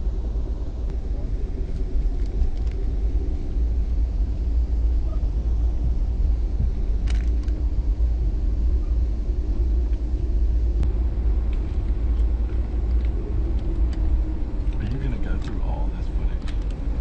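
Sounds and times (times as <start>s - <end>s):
train rumble inside carriage: 0.0s - 17.0s
light clicks: 16.4s - 16.8s.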